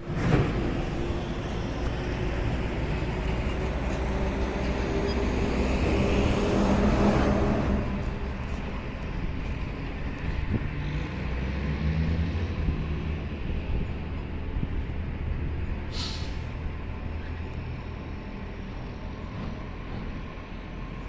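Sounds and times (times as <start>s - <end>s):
diesel engine rumbling: 0.0s - 21.0s
air hiss: 15.9s - 16.4s.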